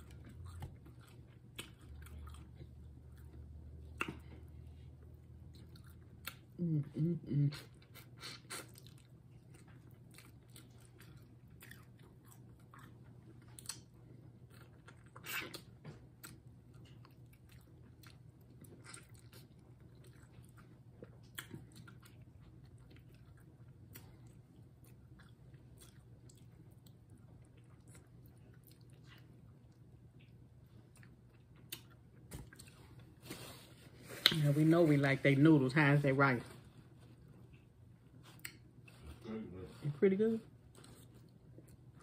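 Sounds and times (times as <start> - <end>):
chewing and biting: 0.0 - 6.6, 7.8 - 33.2
faint low hum: 0.0 - 42.0.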